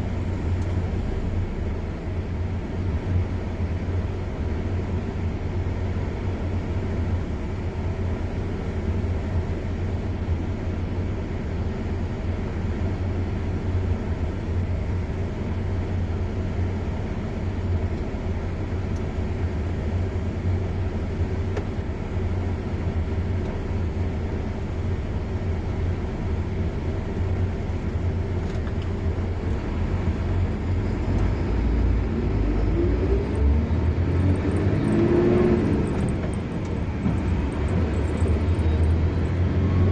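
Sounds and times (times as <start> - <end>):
car engine and tyre rumble: 0.0 - 39.9
rising tone: 31.2 - 39.9.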